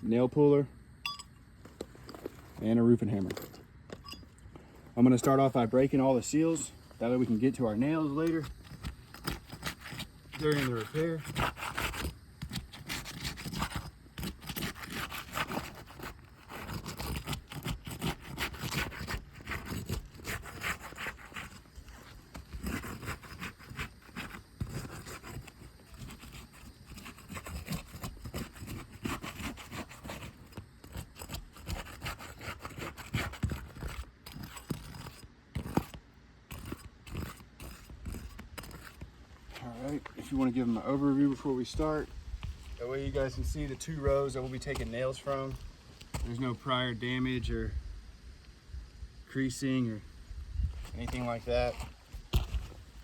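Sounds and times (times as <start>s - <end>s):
metal tool scraping shingles: 5.0s - 46.6s.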